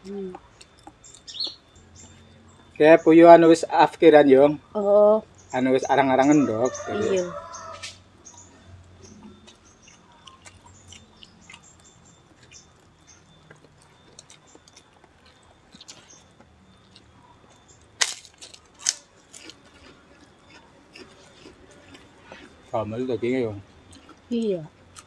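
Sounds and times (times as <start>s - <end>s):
people chewing: 0.0s - 4.6s, 5.3s - 25.0s
sharp cracks: 18.0s - 19.6s.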